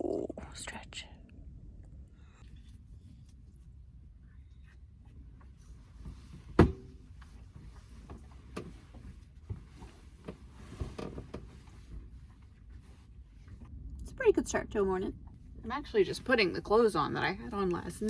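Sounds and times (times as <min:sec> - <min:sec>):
knocks and clunks of someone moving: 0:05.1 - 0:13.8.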